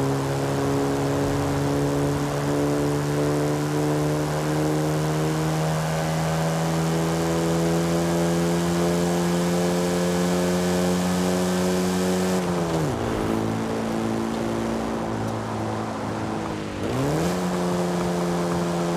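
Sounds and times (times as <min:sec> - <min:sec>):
car engine running: 0:00.0 - 0:05.4, 0:11.6 - 0:18.9.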